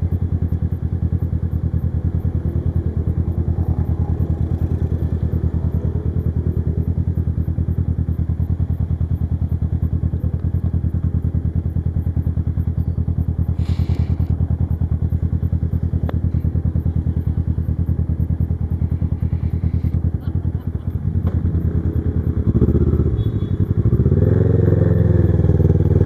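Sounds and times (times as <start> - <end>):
motorcycle engine running: 0.0 - 26.0
short hiss: 13.6 - 14.3.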